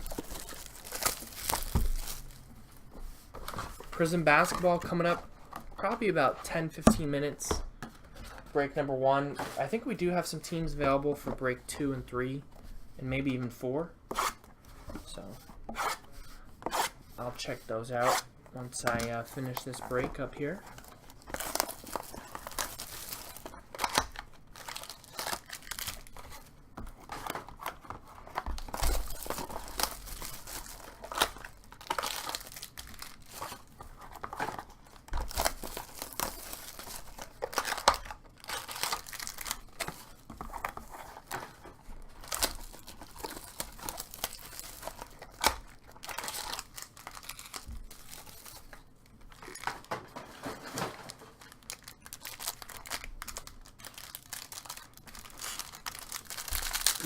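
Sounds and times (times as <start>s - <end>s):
packaging tearing and crinkling: 0.0s - 2.4s, 20.7s - 57.0s.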